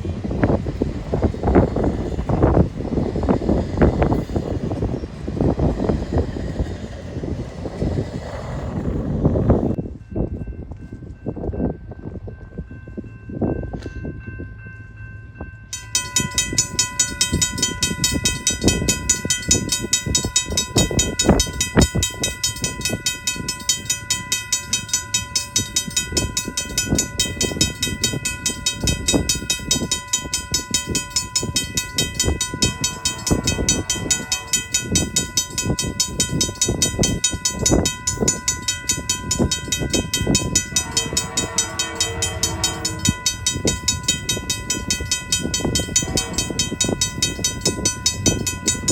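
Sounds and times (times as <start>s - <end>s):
train wheels clattering: 15.7s - 48.9s
short horn tones: 40.7s - 43.3s.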